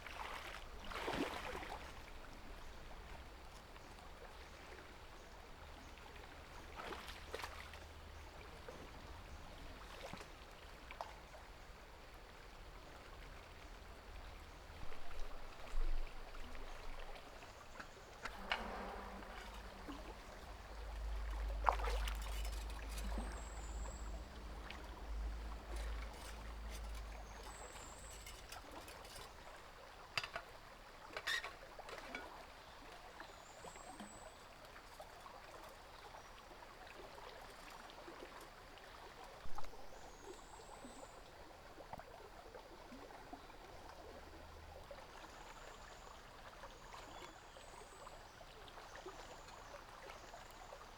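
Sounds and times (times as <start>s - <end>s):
water trickling: 16.3s - 33.2s
low rumble: 18.3s - 27.2s
clicks and knocks of handling: 25.6s - 29.4s, 30.2s - 32.3s.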